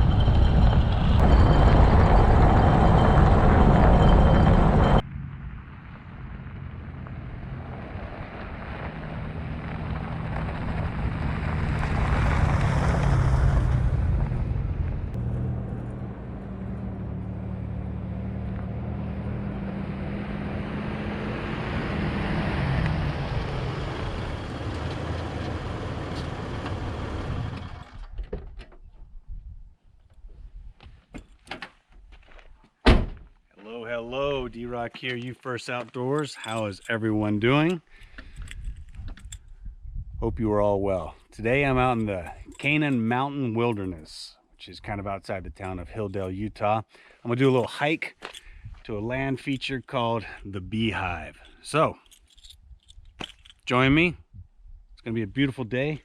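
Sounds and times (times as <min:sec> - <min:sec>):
motor vehicle engine droning: 0:00.0 - 0:28.2.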